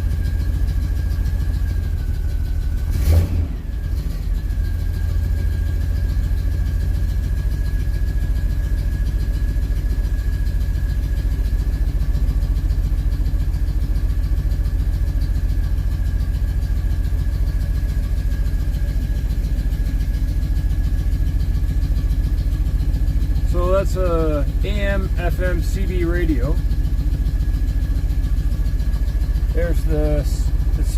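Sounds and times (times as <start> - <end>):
car engine idling: 0.0 - 30.9.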